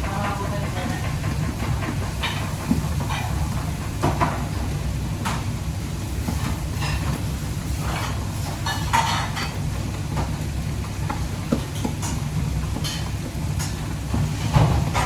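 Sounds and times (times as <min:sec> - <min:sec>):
pans and utensils clinking: 0:00.0 - 0:05.5, 0:06.2 - 0:15.0.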